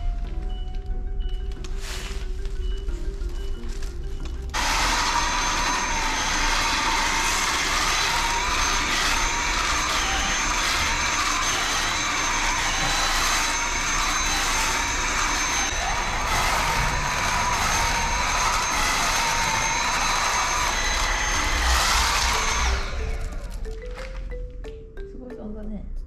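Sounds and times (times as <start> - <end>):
vacuum cleaner running: 4.5 - 24.1.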